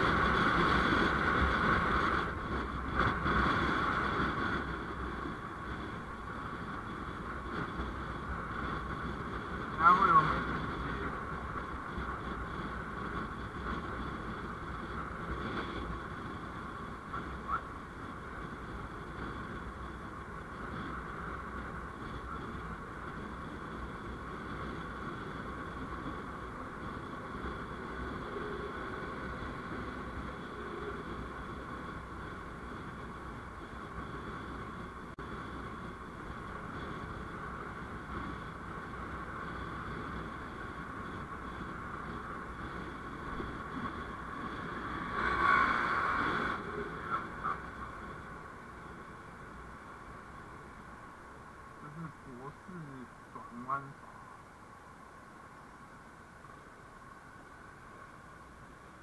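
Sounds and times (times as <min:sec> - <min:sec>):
vehicle road noise: 0:00.0 - 0:59.0.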